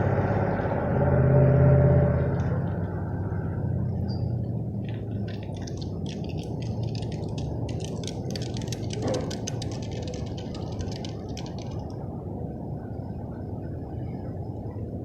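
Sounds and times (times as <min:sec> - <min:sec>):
engine low rumble: 0:00.0 - 0:15.0
rapid clicking rattle: 0:04.9 - 0:12.0.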